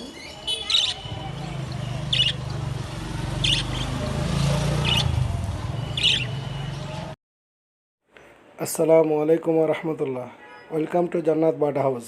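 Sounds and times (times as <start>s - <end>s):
parrot squawks: 0.2s - 1.4s, 2.1s - 2.4s, 3.4s - 4.0s, 4.8s - 5.2s, 5.9s - 6.5s.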